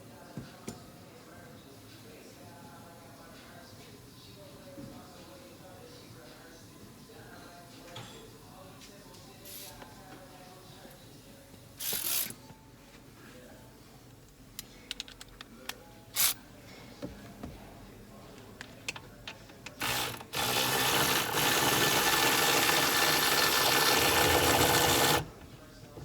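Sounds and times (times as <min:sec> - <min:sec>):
power tool spinning: 0:19.8 - 0:25.3.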